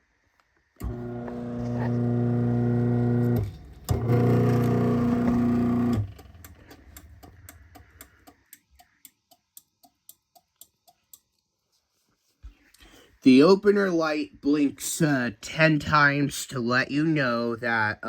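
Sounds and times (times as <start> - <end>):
garage door opener motor: 0.8 - 7.4
faint steady clicks: 5.8 - 11.6.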